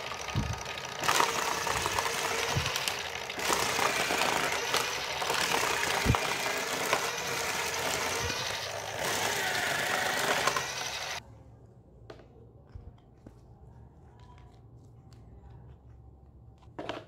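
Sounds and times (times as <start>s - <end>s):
slicer motor whirring: 0.0s - 11.2s.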